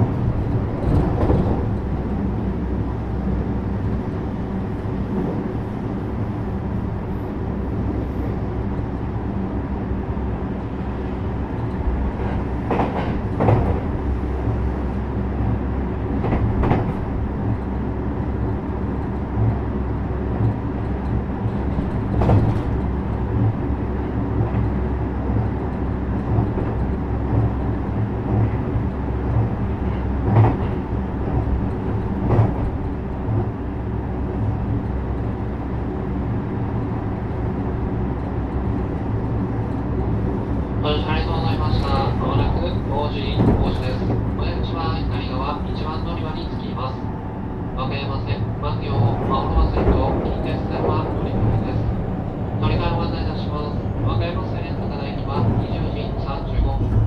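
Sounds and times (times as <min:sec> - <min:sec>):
electric train rumble and motor hum: 0:00.0 - 0:57.0
wheels clacking over rail joints: 0:41.3 - 0:47.2.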